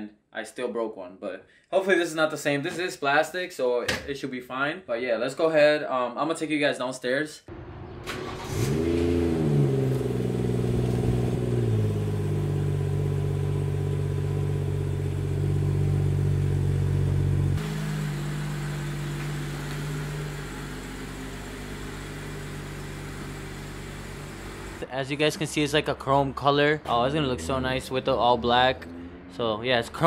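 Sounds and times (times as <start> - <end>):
car engine idling: 7.5 - 24.9.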